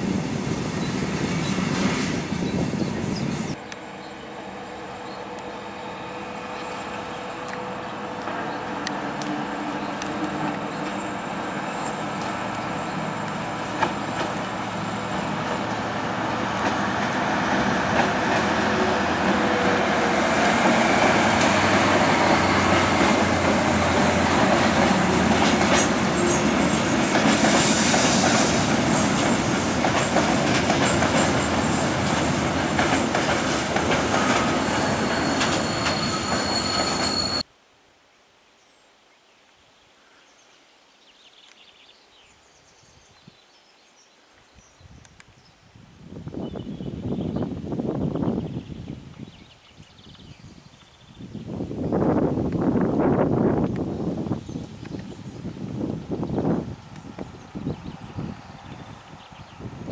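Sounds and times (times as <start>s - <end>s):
diesel locomotives running past: 0.0s - 37.4s, 55.7s - 59.9s
faint outdoor background: 0.3s - 27.5s
wagons rolling over track: 21.1s - 37.4s
high wheel squeal: 34.1s - 37.5s.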